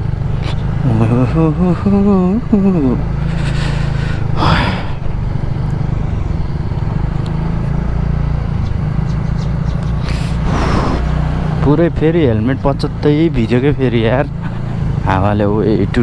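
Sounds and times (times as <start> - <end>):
scooter engine running: 0.0 - 9.7
rush of noise: 10.4 - 11.2.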